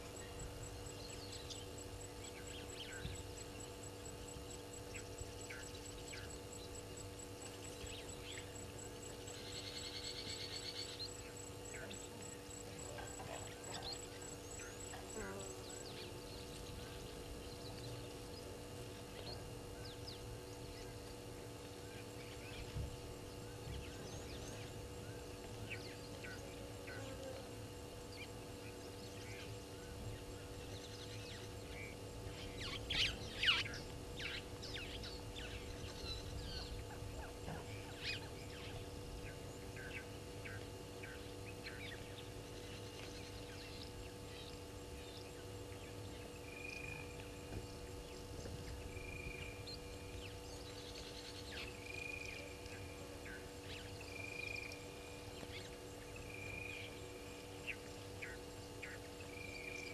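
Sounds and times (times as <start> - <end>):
faint steady hum: 0.0 - 59.9
wild birds calling: 7.5 - 18.2.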